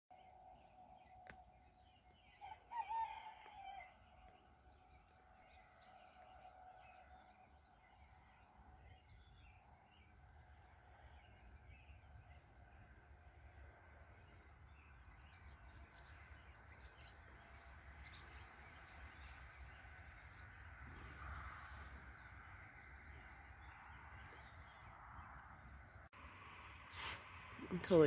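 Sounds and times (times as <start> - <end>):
birds chirping: 0.1 - 28.0.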